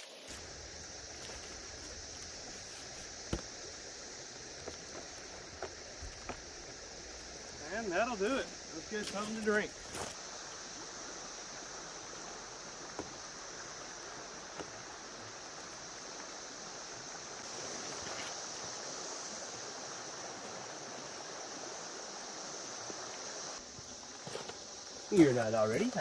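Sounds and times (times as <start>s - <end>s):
high-pitched insect drone: 0.0s - 14.4s
creek water running: 0.0s - 26.0s.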